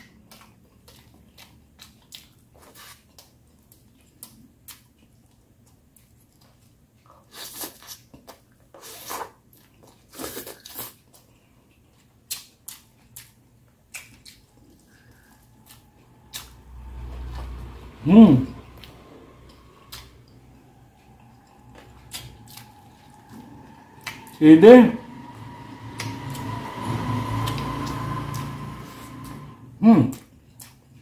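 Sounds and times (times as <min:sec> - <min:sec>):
man chewing with mouth clicks: 0:00.0 - 0:17.5, 0:18.8 - 0:24.4, 0:30.1 - 0:31.0.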